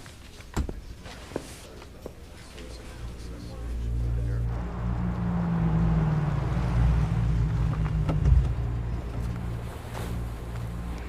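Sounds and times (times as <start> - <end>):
car engine droning: 2.8 - 11.0.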